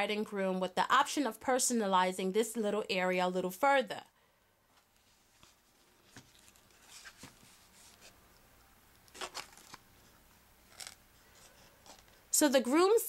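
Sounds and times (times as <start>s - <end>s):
cardstock rustling and tapping: 5.4s - 8.1s.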